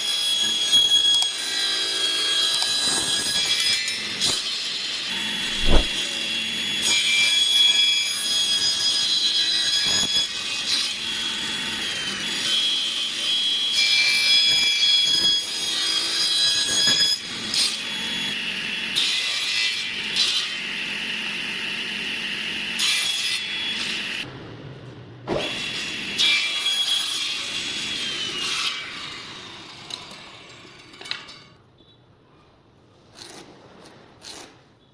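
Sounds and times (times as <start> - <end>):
sharp knock: 5.5 - 6.0.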